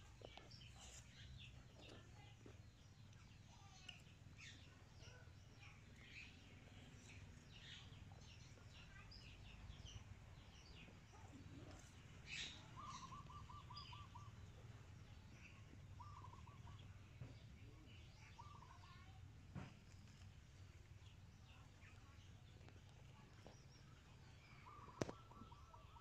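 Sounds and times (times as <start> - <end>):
birds chirping: 0.0 - 26.0
bird trill: 12.3 - 14.3, 16.0 - 16.8.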